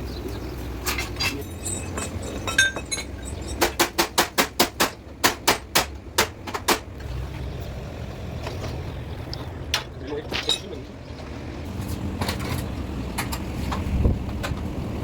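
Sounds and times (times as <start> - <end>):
light metallic clinks: 0.8 - 3.7.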